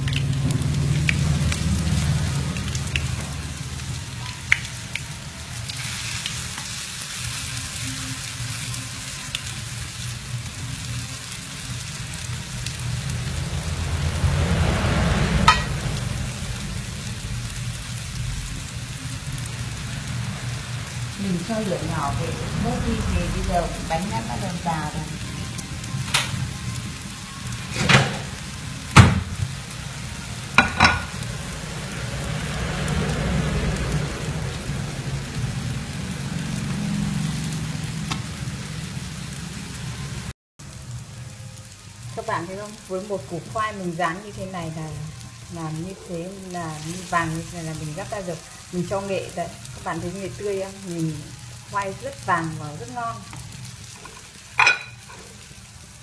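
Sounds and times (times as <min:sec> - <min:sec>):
fritters sizzling in oil: 0:00.0 - 0:56.0
low hum: 0:12.1 - 0:20.8.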